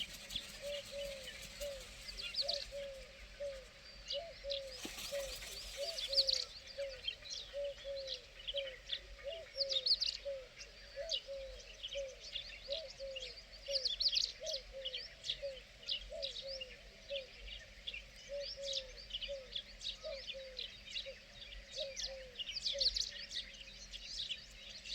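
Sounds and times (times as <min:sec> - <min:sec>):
birds chirping: 0:00.0 - 0:08.6
low arched bird calls: 0:00.0 - 0:09.5.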